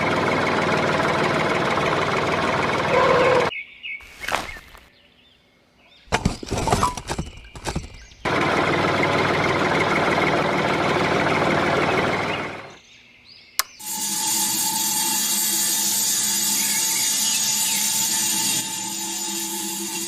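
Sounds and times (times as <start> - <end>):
handling knocks and clicks: 6.1 - 8.2
sharp click: 13.6 - 13.8
small electric motor running: 13.8 - 20.0.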